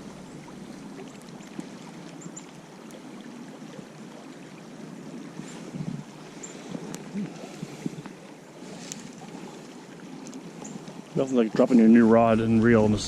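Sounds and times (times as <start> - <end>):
small stream rushing: 0.0 - 13.0
faint ticks: 5.8 - 8.2, 8.8 - 9.4, 10.2 - 11.0.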